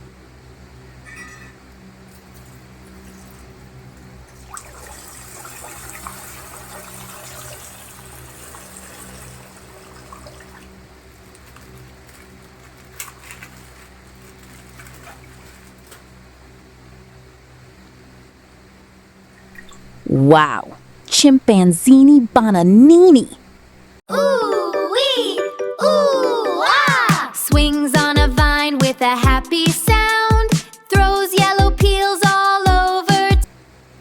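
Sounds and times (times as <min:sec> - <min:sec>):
water pouring from ice pack: 0:04.4 - 0:16.1
steady low hum: 0:15.4 - 0:24.0.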